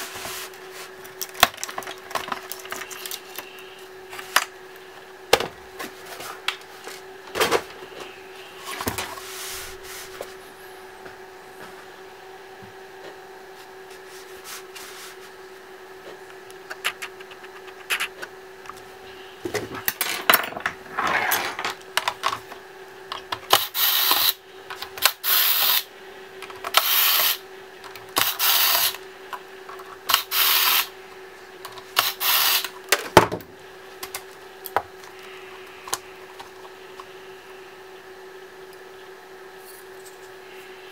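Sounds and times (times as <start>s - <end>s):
electric screwdriver running: 26.7s - 27.4s, 28.2s - 29.0s, 30.1s - 30.9s, 32.0s - 32.7s.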